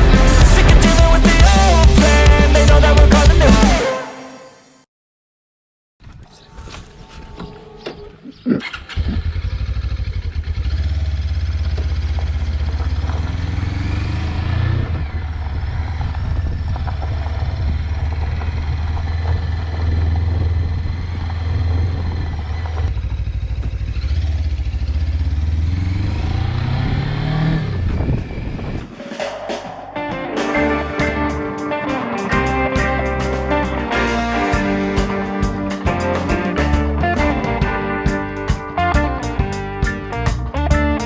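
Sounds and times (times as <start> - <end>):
motorcycle engine accelerating: 8.6 - 41.0.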